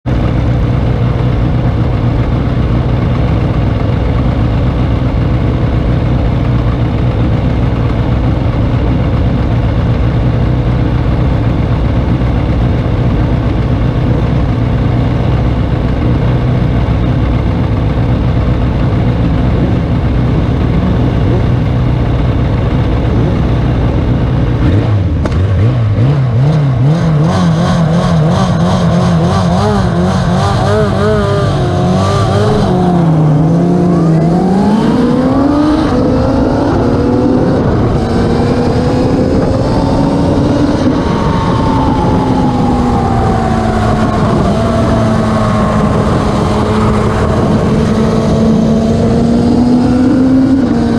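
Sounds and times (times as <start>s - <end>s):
motorcycle engines running: 0.0s - 50.9s
motorcycle revving and accelerating: 0.0s - 50.9s.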